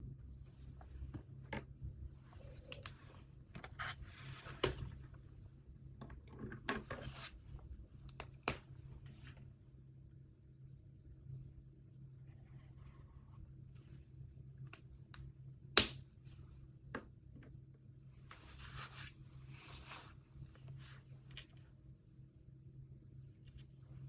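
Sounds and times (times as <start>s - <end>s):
faint steady hum: 0.0s - 24.0s
rustling and scraping on desk: 0.4s - 5.3s, 6.4s - 7.7s, 18.2s - 21.7s.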